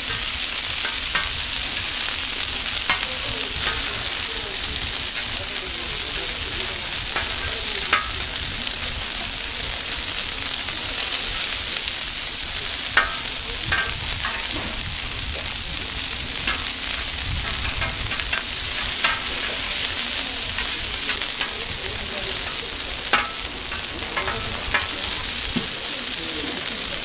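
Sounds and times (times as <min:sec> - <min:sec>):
patties sizzling in oil: 0:00.0 - 0:27.0.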